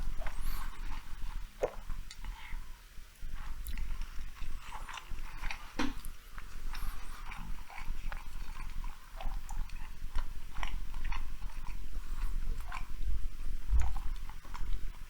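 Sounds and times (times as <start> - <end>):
person chewing with wet mouth sounds: 0.0 - 15.0.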